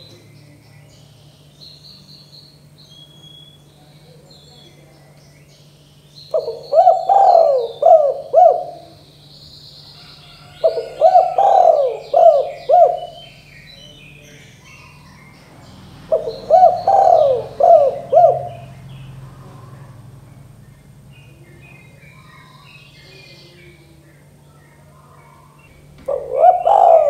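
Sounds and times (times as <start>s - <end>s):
small birds chirping: 0.0s - 27.0s
dove cooing: 6.3s - 9.2s, 9.9s - 27.0s.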